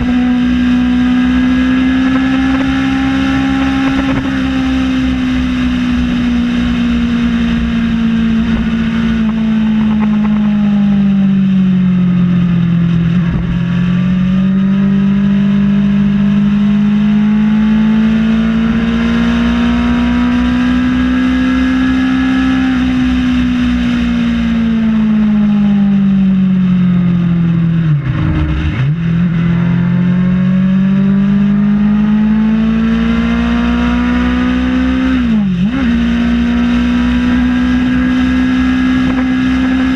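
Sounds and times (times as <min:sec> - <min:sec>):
motorcycle engine at speed: 0:00.0 - 0:39.9
wind rush: 0:27.7 - 0:29.9.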